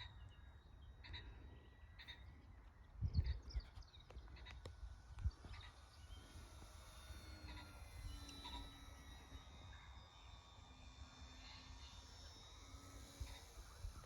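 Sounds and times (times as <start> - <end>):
wind rumble on microphone: 2.8 - 5.7.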